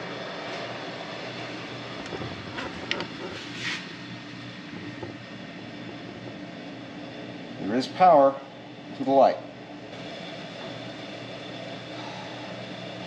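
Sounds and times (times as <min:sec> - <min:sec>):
mechanical drone: 0:00.0 - 0:13.0.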